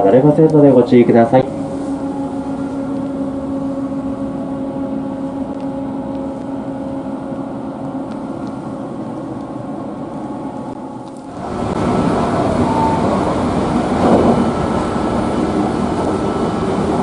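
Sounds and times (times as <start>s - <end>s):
train machinery humming: 0.0s - 17.0s
rushing noise: 8.3s - 17.0s.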